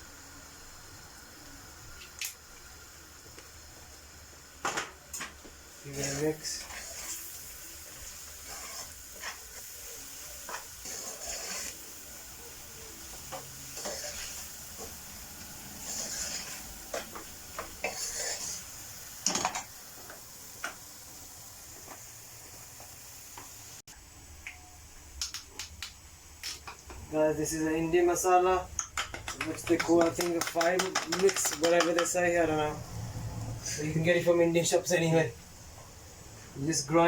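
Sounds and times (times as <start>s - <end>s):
curry sizzling in a pan: 0.0s - 24.2s, 25.3s - 37.0s
spoon stirring and scraping: 5.9s - 12.0s, 13.0s - 18.7s, 28.8s - 32.4s
spoon knocking against pan: 28.8s - 32.2s.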